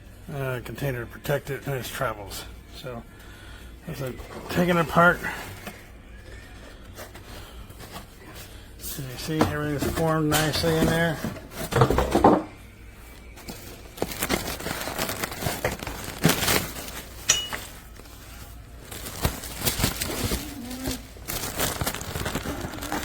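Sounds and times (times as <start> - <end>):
packaging rustling and crinkling: 3.9 - 12.3, 13.1 - 23.0.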